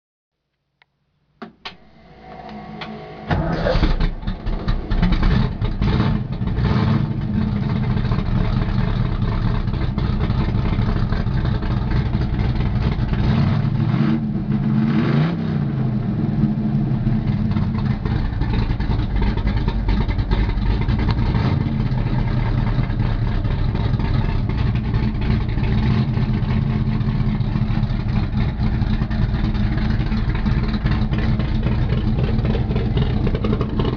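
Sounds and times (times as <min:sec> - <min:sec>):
car engine revving and idling: 0:01.7 - 0:33.9
engine starter cranking: 0:02.8 - 0:06.5.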